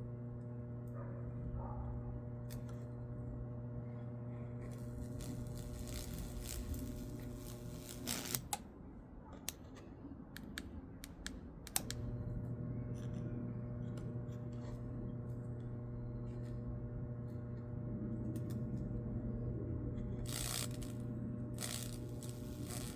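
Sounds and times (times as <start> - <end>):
transformer humming: 2.0 - 8.6, 11.8 - 22.9
electric crackles and snaps: 4.6 - 8.6, 20.1 - 22.9.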